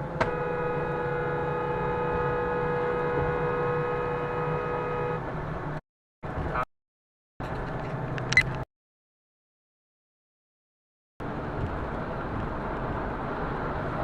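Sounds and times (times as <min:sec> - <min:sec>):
engine and road hum: 0:00.0 - 0:06.7, 0:07.4 - 0:08.7, 0:11.2 - 0:14.0
car horn blast: 0:00.2 - 0:05.3.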